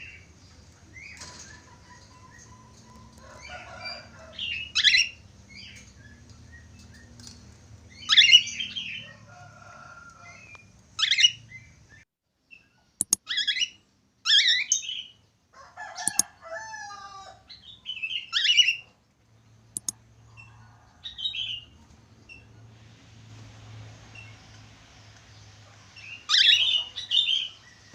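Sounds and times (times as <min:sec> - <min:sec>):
budgerigar chirping and warbling: 0:08.0 - 0:08.9, 0:26.3 - 0:27.5
sharp clicks: 0:13.0 - 0:13.2, 0:16.0 - 0:16.3, 0:19.8 - 0:20.0.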